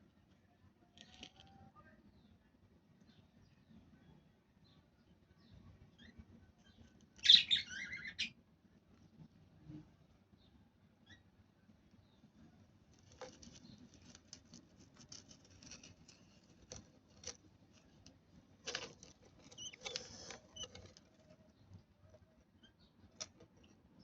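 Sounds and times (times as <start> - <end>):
chicks squeaking: 6.0 - 8.3, 18.7 - 21.4
chicks rustling in nest: 12.6 - 23.8.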